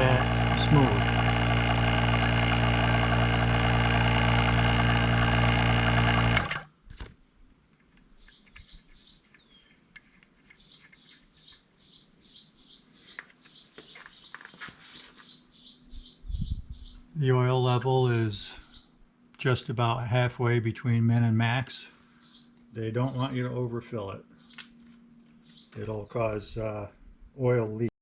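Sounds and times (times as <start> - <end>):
vacuum pump running: 0.0 - 6.7
birds chirping: 8.0 - 9.8, 10.4 - 19.0, 22.0 - 26.6.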